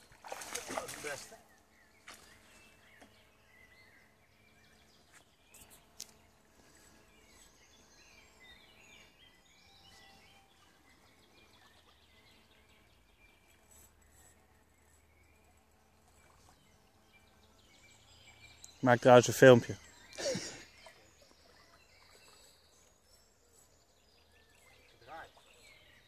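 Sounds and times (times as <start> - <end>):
faint birdsong chirping: 0.0 - 26.0.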